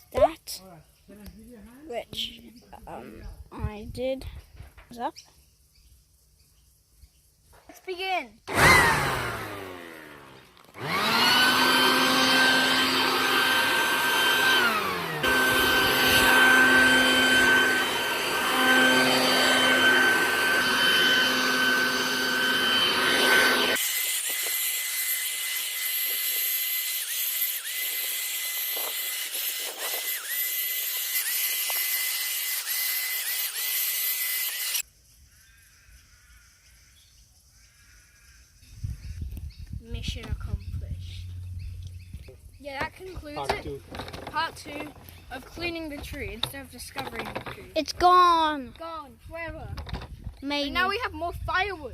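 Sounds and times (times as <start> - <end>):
electric saw motor whining: 8.5 - 34.9, 42.8 - 47.6.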